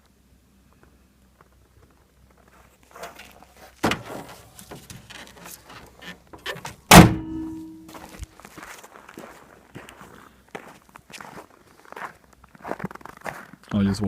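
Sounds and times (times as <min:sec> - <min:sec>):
handling noises: 0:01.4 - 0:10.0
truck hood thud: 0:03.8 - 0:05.0, 0:06.9 - 0:07.8
hood slamming with metallic ring: 0:06.9 - 0:08.0.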